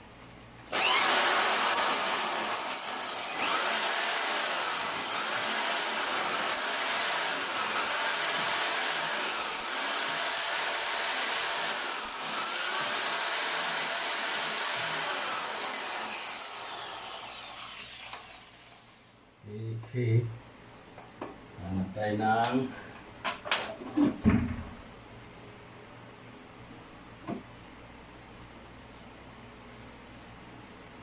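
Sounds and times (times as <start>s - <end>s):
power tool running under load: 0.7s - 19.0s.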